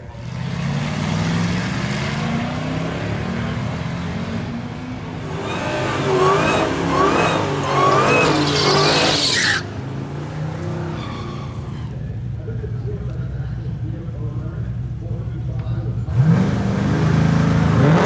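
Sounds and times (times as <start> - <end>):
car engine running: 5.0 - 12.0
tyre squeal: 5.2 - 12.0.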